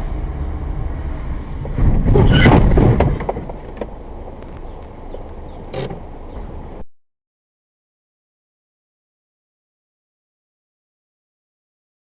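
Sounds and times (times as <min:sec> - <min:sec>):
road and engine rumble: 0:00.0 - 0:06.9
loud rough noise with knocks: 0:01.6 - 0:04.6.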